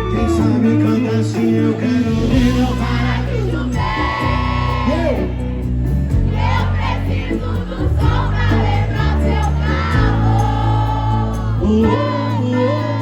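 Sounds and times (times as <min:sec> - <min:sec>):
bass stepping through chords: 0:00.0 - 0:13.0
live band music: 0:00.0 - 0:13.0
voices singing together: 0:00.0 - 0:13.0.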